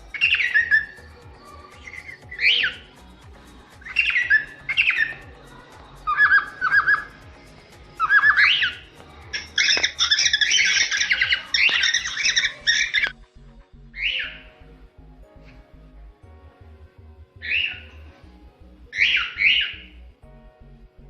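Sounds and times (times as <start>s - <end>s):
cockatiel whistled chirps: 0.1s - 1.1s
cockatiel squawking chatter: 8.0s - 13.1s.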